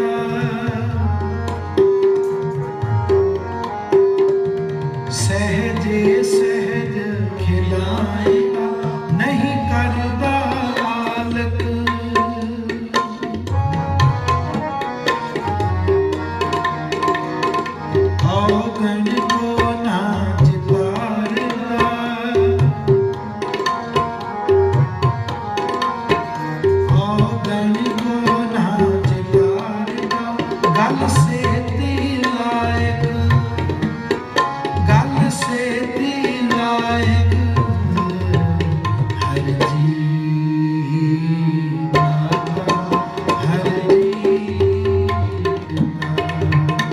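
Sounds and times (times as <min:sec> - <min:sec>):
harmonium notes: 0:00.0 - 0:46.9
tabla playing: 0:00.0 - 0:46.9
held accompaniment notes: 0:13.4 - 0:20.0.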